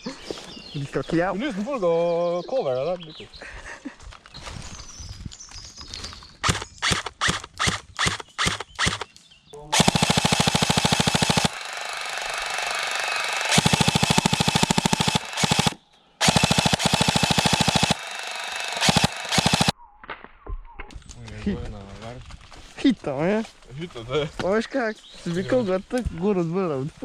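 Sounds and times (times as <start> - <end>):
airsoft gun full-auto bursts: 6.4 - 9.1, 9.8 - 19.7
airsoft gun single shots: 6.4 - 9.1.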